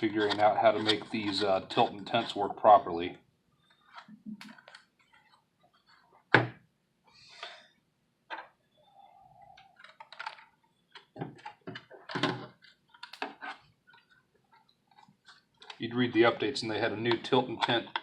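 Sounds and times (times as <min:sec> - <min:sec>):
keyboard knocks and thunks: 0:06.3 - 0:06.6.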